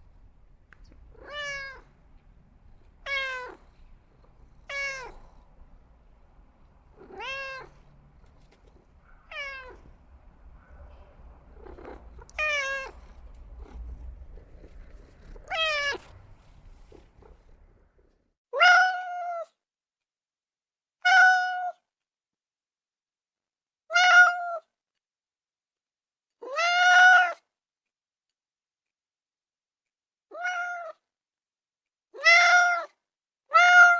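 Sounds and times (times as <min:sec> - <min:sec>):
cat meowing: 0:01.1 - 0:02.0, 0:03.0 - 0:03.8, 0:04.4 - 0:05.4, 0:06.9 - 0:10.0, 0:11.6 - 0:19.5, 0:21.0 - 0:21.8, 0:23.9 - 0:24.6, 0:26.4 - 0:27.4, 0:30.3 - 0:31.0, 0:32.2 - 0:33.9
low rumble: 0:03.7 - 0:18.2.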